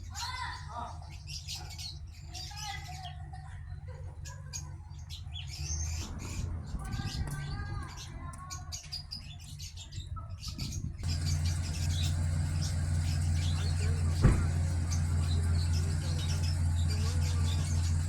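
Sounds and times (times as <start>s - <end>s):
small birds chirping: 0.0s - 18.0s
low hum: 11.0s - 18.0s.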